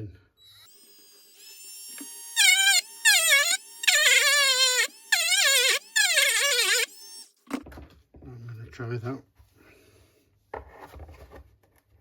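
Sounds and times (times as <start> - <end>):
rotary tool whining: 0.4 - 7.3.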